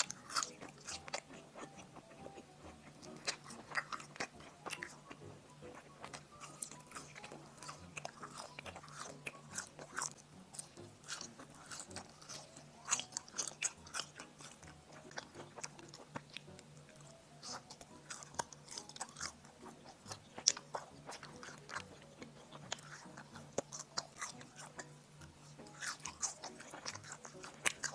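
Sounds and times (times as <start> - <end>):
biting and chewing: 0.0 - 27.9
mouth clicks and smacks: 0.0 - 27.9.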